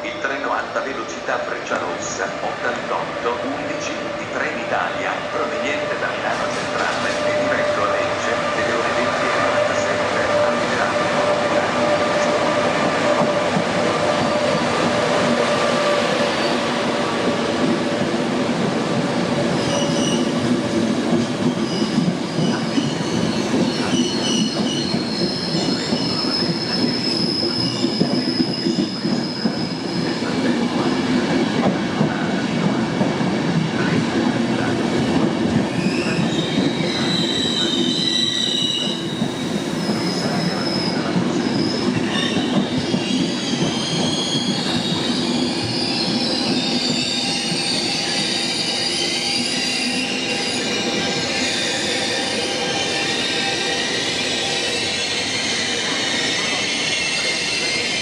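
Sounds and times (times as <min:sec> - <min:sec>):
train wheels rumbling: 0:00.0 - 0:58.0
wheel squeal: 0:19.6 - 0:20.3.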